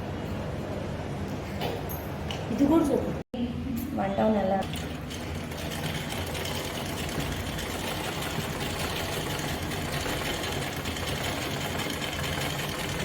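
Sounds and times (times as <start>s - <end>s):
sewing machine stitching: 4.6s - 13.0s.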